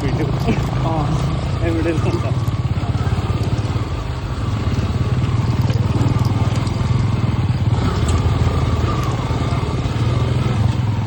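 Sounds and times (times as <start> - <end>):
faint clicks and rattles: 0.0 - 7.2
motorcycle engine running: 0.0 - 11.0.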